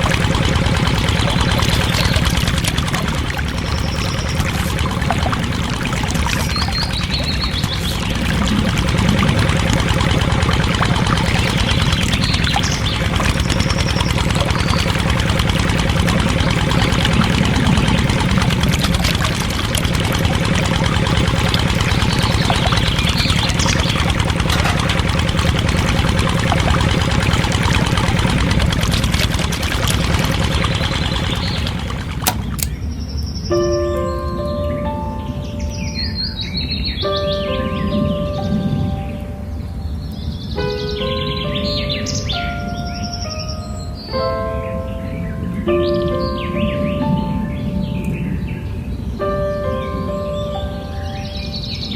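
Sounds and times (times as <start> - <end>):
small motor humming: 0.0 - 32.8
water pouring: 0.0 - 32.8.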